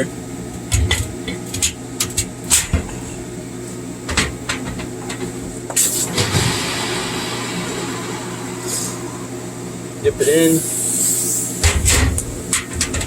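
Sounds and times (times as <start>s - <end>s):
welding arc crackling and hissing: 4.9s - 13.0s
metal knocks and clatters: 11.6s - 13.0s.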